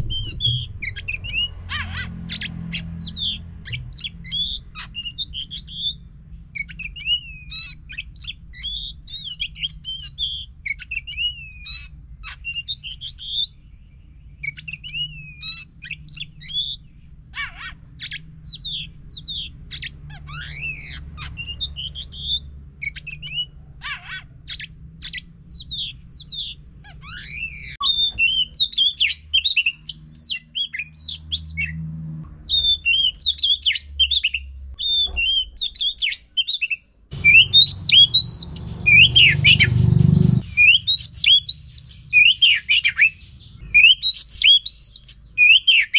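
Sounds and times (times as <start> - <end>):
faint low hum: 0.0 - 28.4
bird singing: 0.0 - 45.9.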